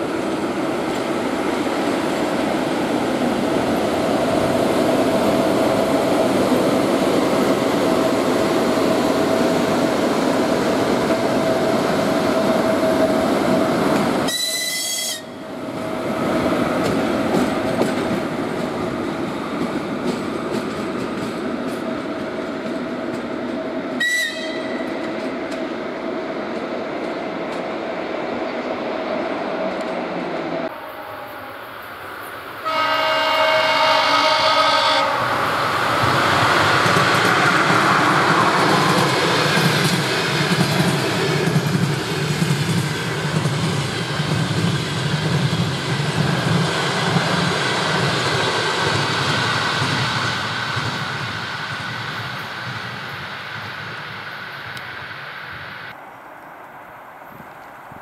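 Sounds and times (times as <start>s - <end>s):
train rumbling: 0.0s - 58.0s
high-pitched train horn blasts: 14.3s - 15.4s, 24.0s - 24.9s, 30.7s - 31.8s, 32.6s - 35.3s.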